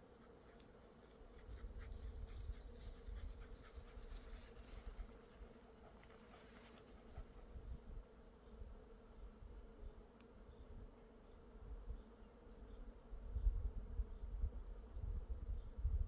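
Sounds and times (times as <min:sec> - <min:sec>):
footsteps crunching on forest path: 0:06.0 - 0:07.0.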